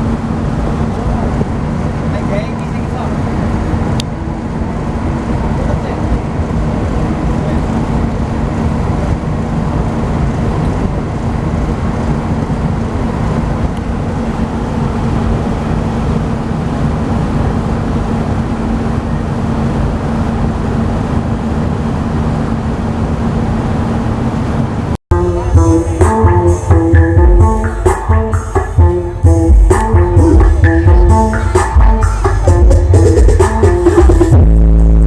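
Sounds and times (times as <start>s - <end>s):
engine running: 0.0s - 35.0s.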